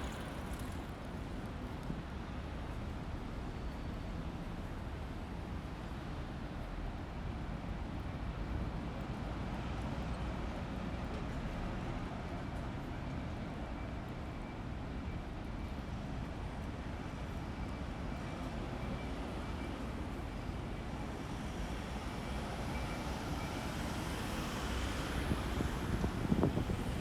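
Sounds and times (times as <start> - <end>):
wind buffeting microphone: 25.1 - 27.0.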